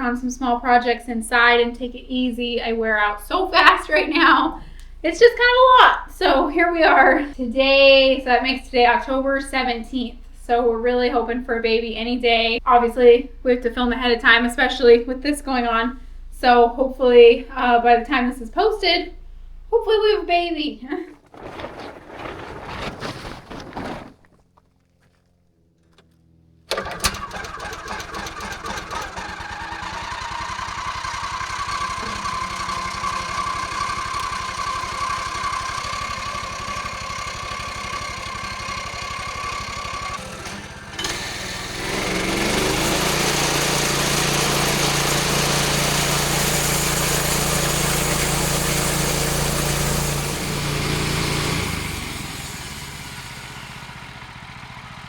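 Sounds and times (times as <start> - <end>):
small gasoline engine running: 23.6 - 55.0.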